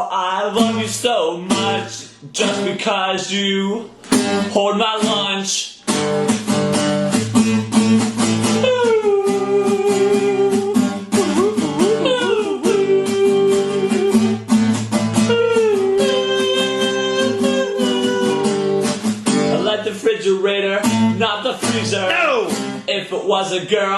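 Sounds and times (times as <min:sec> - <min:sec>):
strummed acoustic guitar: 0:00.0 - 0:23.2
sliding guitar melody: 0:05.9 - 0:20.0, 0:20.8 - 0:22.9.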